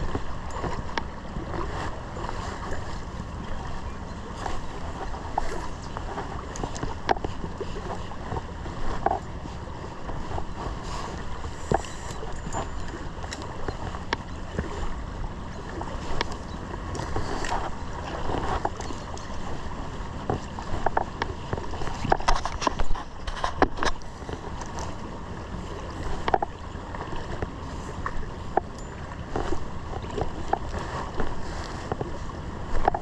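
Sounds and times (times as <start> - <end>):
stream water running: 0.0 - 33.0
small splashes and knocks: 4.3 - 14.9, 15.6 - 19.6, 25.7 - 33.0.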